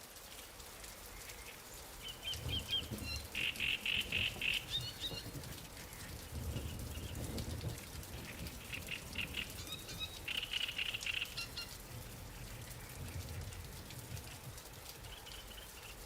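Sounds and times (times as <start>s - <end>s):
light rain falling on water: 0.0s - 16.0s
high chirping calls: 8.7s - 11.8s.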